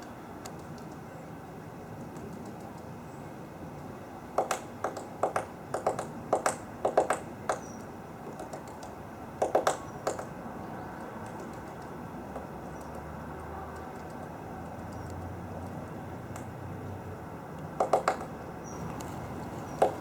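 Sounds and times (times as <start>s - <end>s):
woodpecker tapping: 4.4s - 10.4s, 11.2s - 13.1s, 17.8s - 20.0s.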